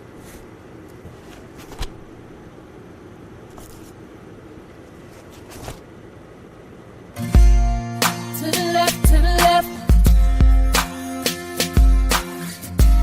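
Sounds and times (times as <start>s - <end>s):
music with heavy bass: 7.3s - 13.0s.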